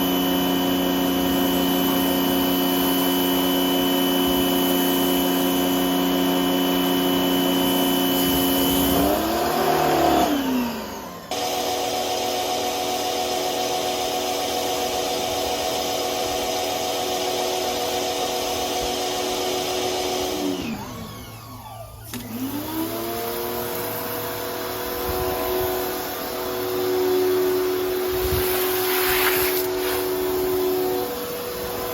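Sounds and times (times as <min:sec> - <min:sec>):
pressure washer motor and pump: 0:00.0 - 0:31.9
water spraying: 0:27.1 - 0:31.9.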